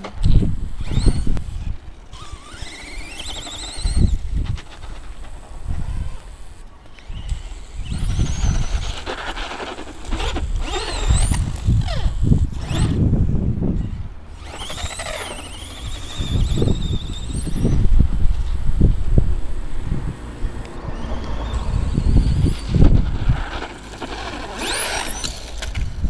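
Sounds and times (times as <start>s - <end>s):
electric motor whining: 0.0s - 13.1s, 13.7s - 25.9s.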